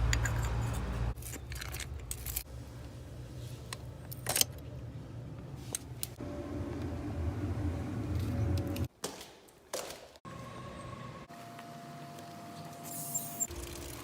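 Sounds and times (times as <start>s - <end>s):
low rumble and hum: 2.0s - 8.9s.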